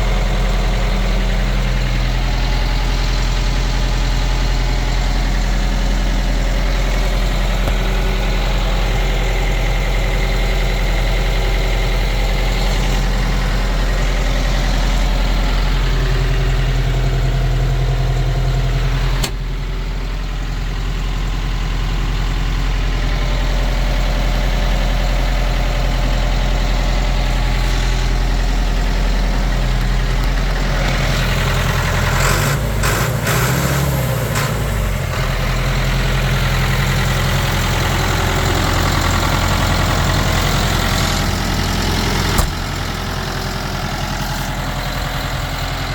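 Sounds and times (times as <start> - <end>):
tractor diesel engine idling: 0.0 - 45.9
sharp click: 42.4 - 42.8.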